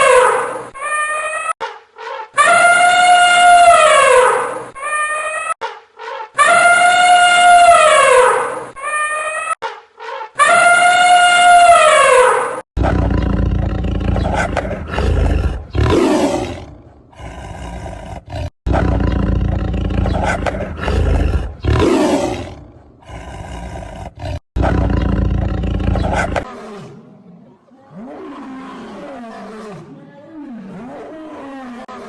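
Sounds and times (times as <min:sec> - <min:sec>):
big cat roaring: 0:12.8 - 0:32.0.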